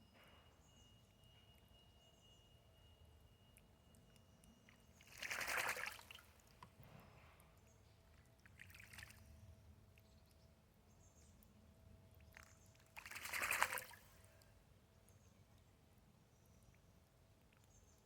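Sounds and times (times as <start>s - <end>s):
bird splashing in water: 5.0s - 6.6s, 8.5s - 9.2s, 12.3s - 14.1s.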